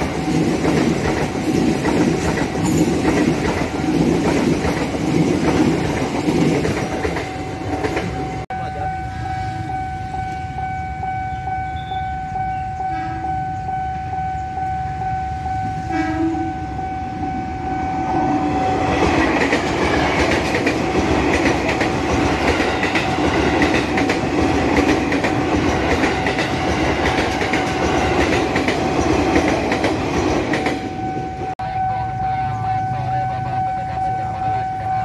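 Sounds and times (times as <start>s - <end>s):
train wheels clattering over joints: 0.0s - 8.4s
level crossing warning alarm: 0.0s - 35.0s.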